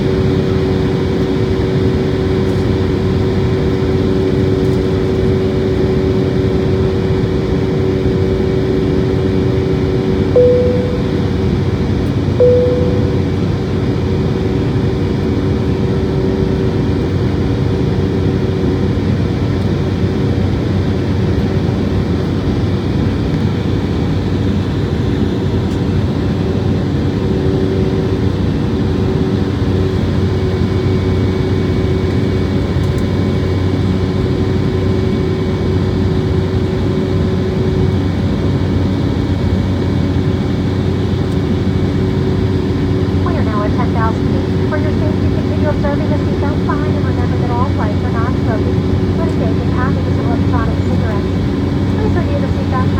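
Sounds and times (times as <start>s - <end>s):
jet engines droning in cabin: 0.0s - 52.9s
short tones: 10.4s - 11.4s, 12.4s - 13.6s.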